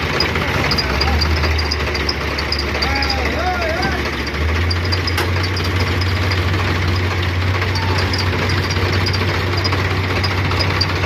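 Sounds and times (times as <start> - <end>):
heavy vehicle engine idling: 0.0 - 11.0.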